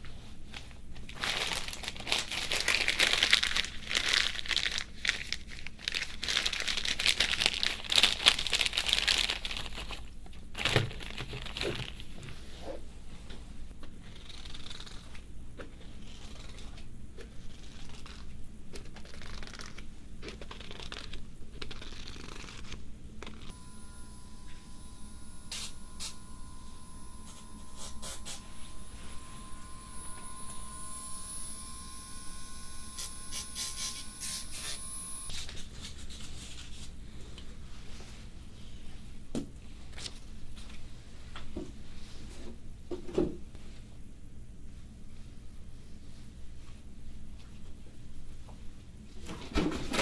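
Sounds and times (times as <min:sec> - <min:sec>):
crinkling handling noises: 0:00.0 - 0:13.5
steady high tones: 0:23.5 - 0:35.3.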